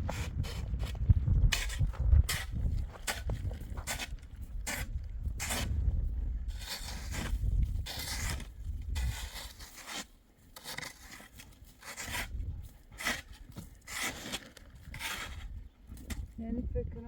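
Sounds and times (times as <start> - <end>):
wind buffeting microphone: 0.0 - 9.7, 12.0 - 14.0, 14.7 - 17.0
scraping and rustling strokes: 6.5 - 16.2.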